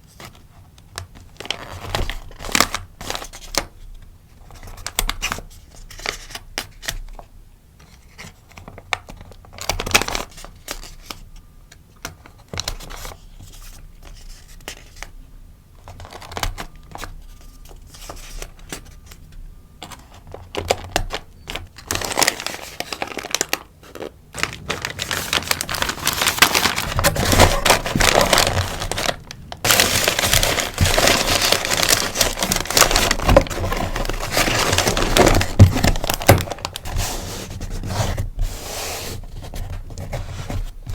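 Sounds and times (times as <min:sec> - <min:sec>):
sticker packaging crinkling: 0:15.8 - 0:37.9.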